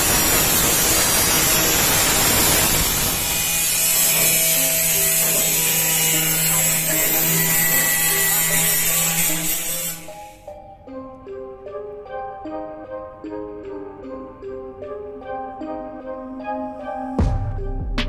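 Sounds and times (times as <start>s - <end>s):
harsh hissing of steel worked: 0.0s - 10.6s
background music: 3.2s - 18.0s.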